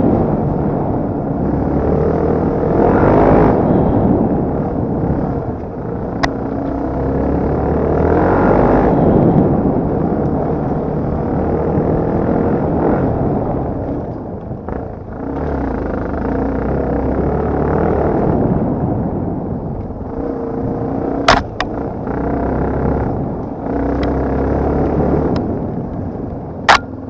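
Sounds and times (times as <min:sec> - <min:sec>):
dirt bike engine revving: 0:01.4 - 0:05.5
sharp knocks: 0:21.3 - 0:21.7.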